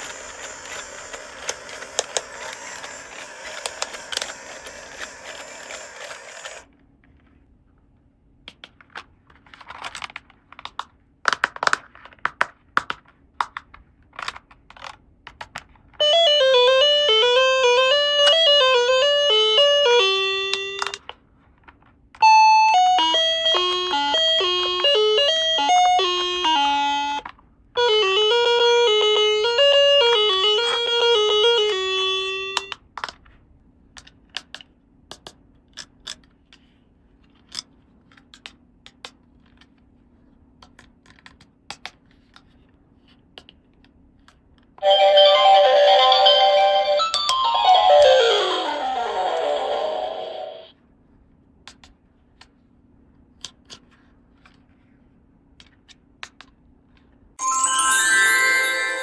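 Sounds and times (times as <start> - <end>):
toy chime tune: 0.0 - 6.6, 16.0 - 21.0, 22.2 - 27.2, 44.8 - 50.7, 57.4 - 59.0.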